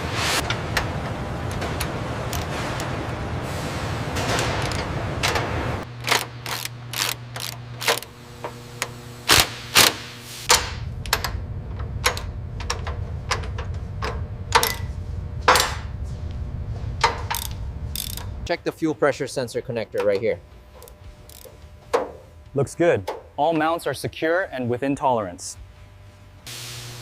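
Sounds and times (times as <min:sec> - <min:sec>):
machine hum: 0:00.0 - 0:27.0
metallic tool clicks and clanks: 0:17.3 - 0:18.3.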